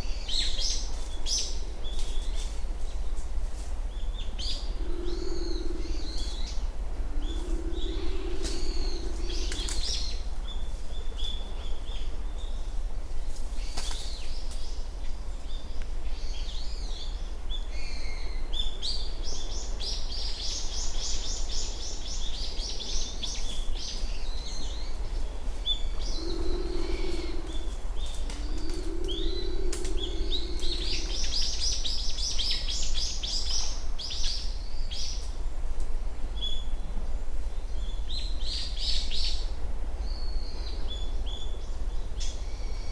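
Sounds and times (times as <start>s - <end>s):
constant low rumble: 0.0s - 42.9s
songbirds chirping: 0.0s - 42.9s
short low hums: 25.9s - 31.6s.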